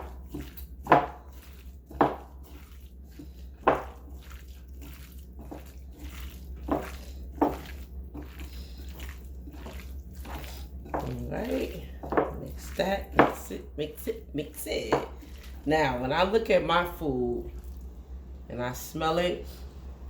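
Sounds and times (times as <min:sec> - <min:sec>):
wet squishing of mixing meat: 0:00.0 - 0:18.4
steady low hum: 0:00.0 - 0:20.0.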